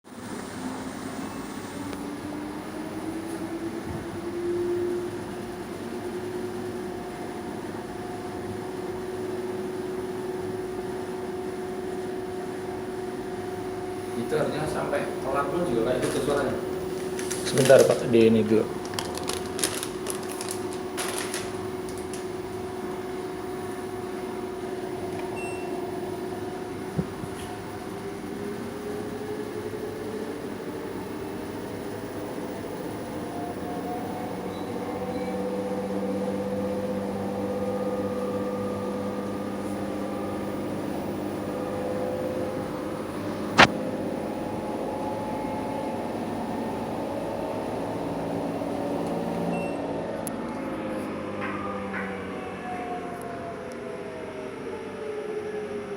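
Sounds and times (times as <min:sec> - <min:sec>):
washing machine spinning: 0:00.6 - 0:50.2.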